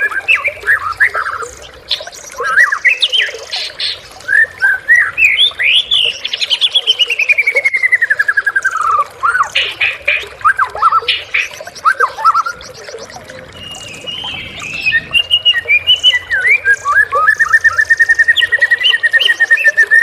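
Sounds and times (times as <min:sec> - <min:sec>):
bird singing whistles and chirps: 0:10.5 - 0:20.0.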